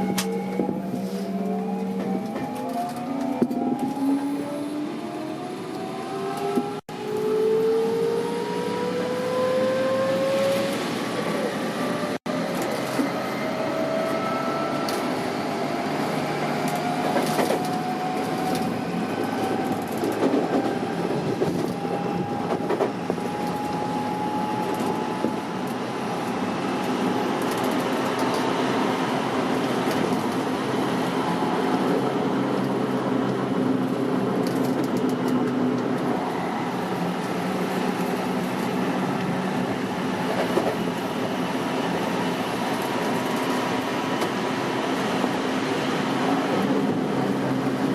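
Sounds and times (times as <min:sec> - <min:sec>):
wheel-on-rail rumble: 0:10.1 - 0:47.9.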